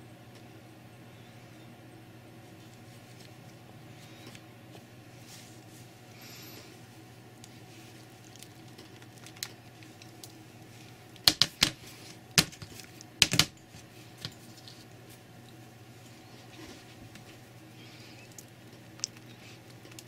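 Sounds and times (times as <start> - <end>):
hard objects clicking and knocking: 12.4 - 13.6.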